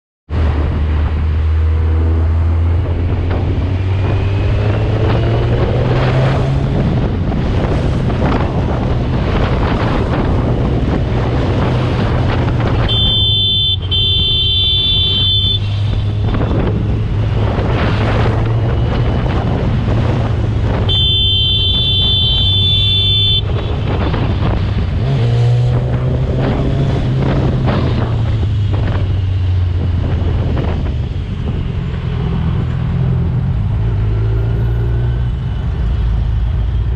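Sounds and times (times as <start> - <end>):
wind rushing over microphone: 0.3 - 36.9
horn blasts: 12.8 - 15.7, 20.8 - 23.7.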